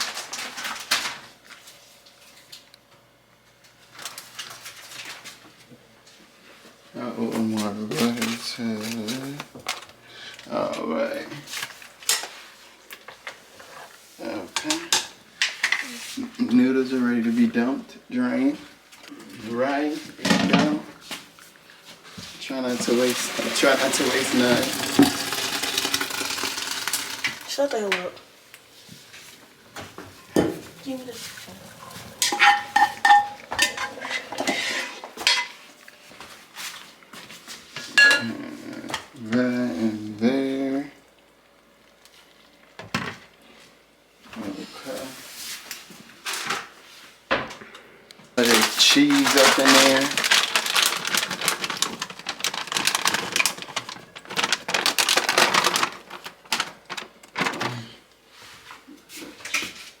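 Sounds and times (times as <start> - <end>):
shredded cheese clicking and rustling: 22.7 - 27.5, 48.4 - 57.9
metal pots and utensils clanking: 31.8 - 35.6, 38.0 - 38.3.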